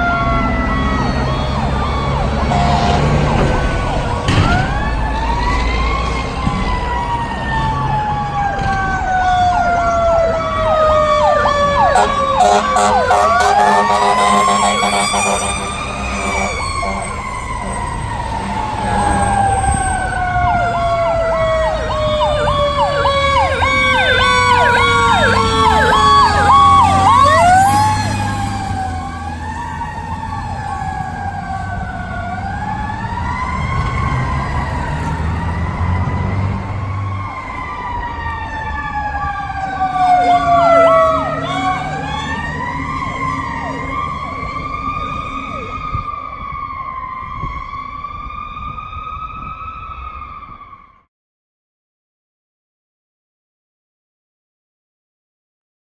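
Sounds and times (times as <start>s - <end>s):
fire truck siren falling in pitch: 0.0s - 51.1s
siren wailing: 0.0s - 51.1s
electronic siren chirping: 7.8s - 32.3s.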